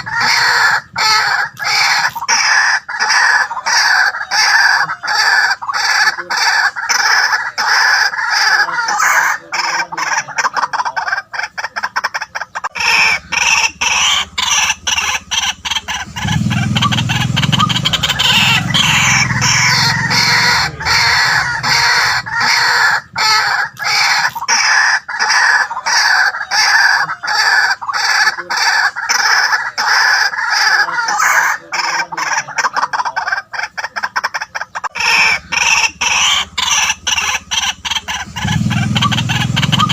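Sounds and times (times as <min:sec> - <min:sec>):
bird calling rapid loud notes: 0:00.0 - 0:39.9
deep hum: 0:12.8 - 0:24.0, 0:35.2 - 0:39.9.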